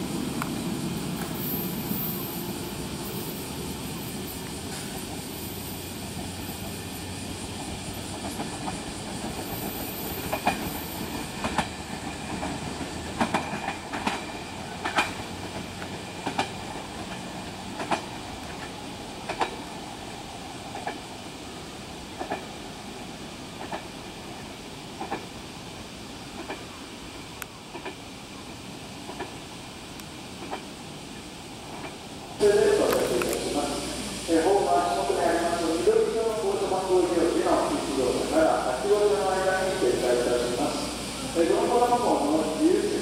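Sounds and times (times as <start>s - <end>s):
electric train pulling away: 0.0s - 20.6s, 32.4s - 43.0s
train wheels clacking over rail joints: 6.1s - 19.7s, 20.7s - 21.0s, 22.1s - 22.6s, 23.5s - 24.4s, 25.0s - 25.3s, 26.3s - 26.8s, 27.7s - 28.0s, 29.0s - 29.4s, 30.3s - 30.7s.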